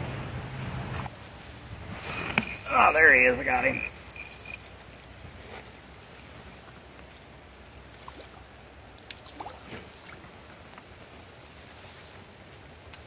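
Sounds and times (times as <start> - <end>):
light rain: 5.8 - 13.0
water splashing: 7.9 - 11.7.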